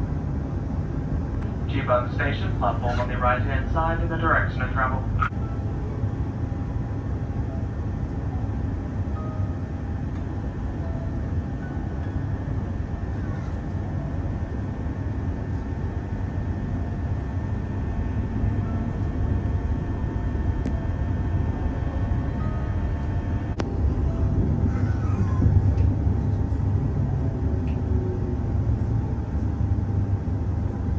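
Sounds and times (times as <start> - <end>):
train motor tones: 9.1 - 29.5.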